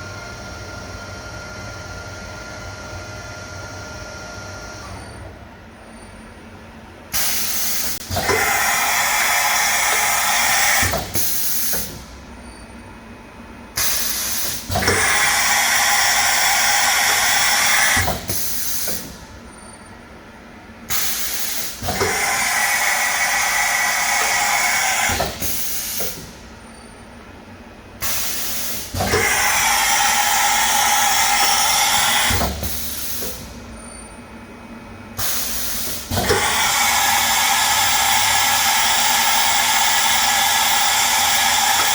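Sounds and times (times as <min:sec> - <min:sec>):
cnc mill running: 0:07.2 - 0:11.9, 0:13.9 - 0:19.8, 0:21.0 - 0:26.3, 0:28.1 - 0:33.7, 0:35.3 - 0:41.9.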